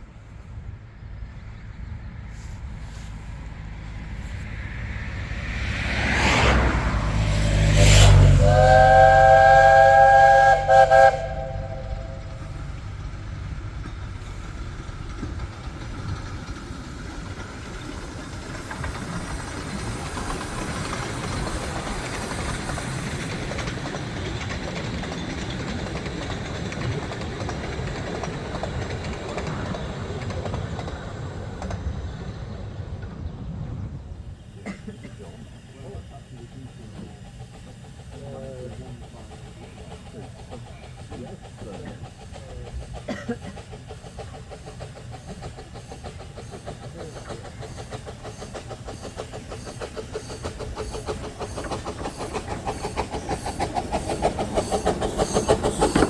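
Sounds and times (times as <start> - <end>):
steam train passing: 0.0 - 56.0
steam chime whistle: 8.0 - 12.6, 47.7 - 56.0.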